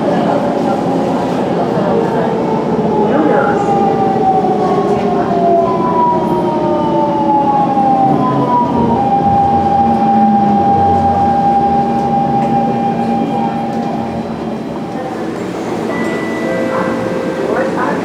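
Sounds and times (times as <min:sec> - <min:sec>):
train running rumble: 0:07.4 - 0:18.0.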